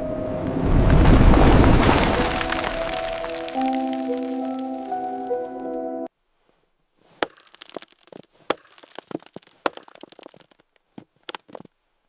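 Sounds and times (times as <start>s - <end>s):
sharp cracks and crackles: 2.0s - 4.4s, 7.2s - 11.7s
background music: 2.0s - 6.1s.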